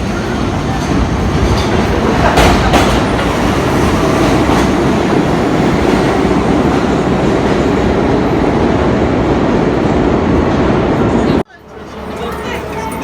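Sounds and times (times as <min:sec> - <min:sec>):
subway car running on track: 0:00.0 - 0:13.0.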